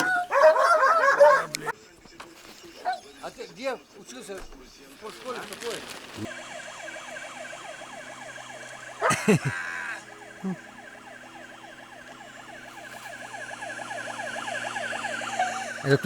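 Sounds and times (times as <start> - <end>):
electronic siren warble: 6.3 - 16.0.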